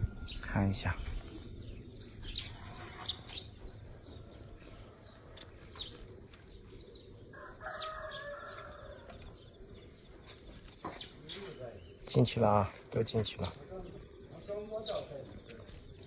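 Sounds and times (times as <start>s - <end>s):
small birds chirping: 0.0s - 16.0s
rooster crowing faintly: 7.3s - 9.4s.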